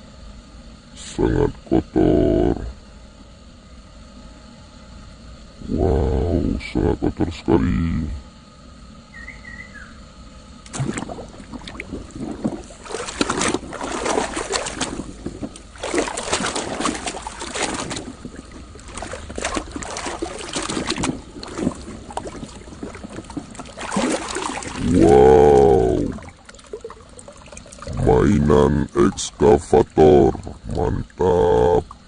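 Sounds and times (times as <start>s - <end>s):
water splashing and sloshing: 10.6s - 32.0s.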